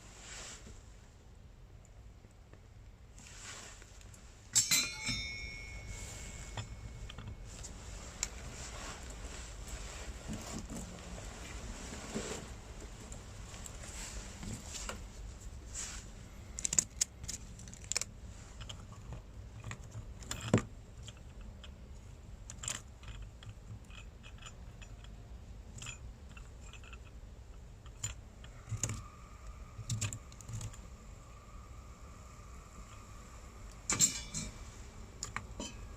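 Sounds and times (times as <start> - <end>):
faint steady tone: 0.0 - 12.0, 23.0 - 35.9
metal gear clinking: 4.6 - 7.2, 33.9 - 34.6.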